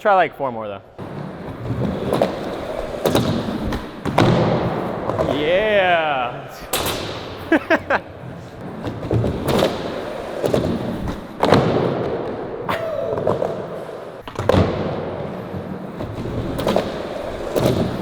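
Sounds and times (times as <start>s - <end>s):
skateboard deck knocking ground: 1.0s - 5.6s
skateboard wheels rolling: 1.0s - 18.0s.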